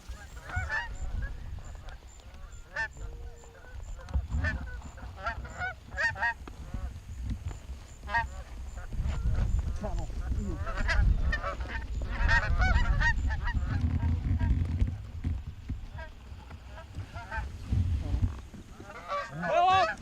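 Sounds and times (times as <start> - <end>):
geese honking: 0.0 - 15.0, 15.9 - 20.0.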